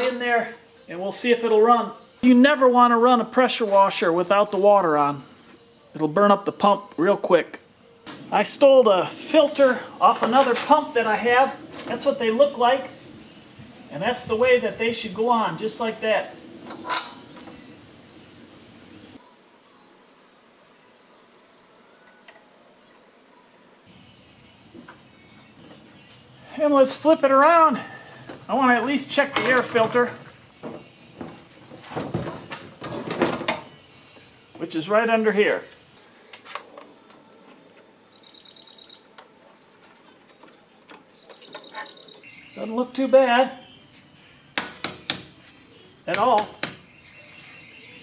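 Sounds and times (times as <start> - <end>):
faint background hiss: 0.0 - 44.5
small bird trilling: 36.8 - 42.6.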